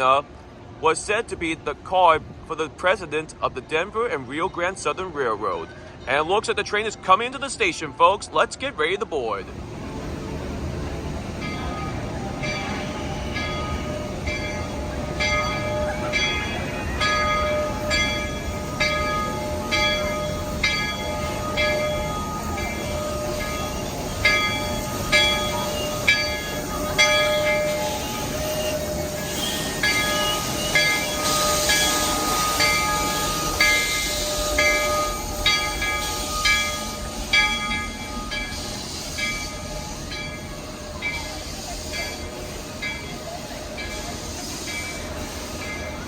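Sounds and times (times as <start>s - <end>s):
steam hissing: 9.5s - 46.0s
locomotive bell ringing: 10.7s - 46.0s.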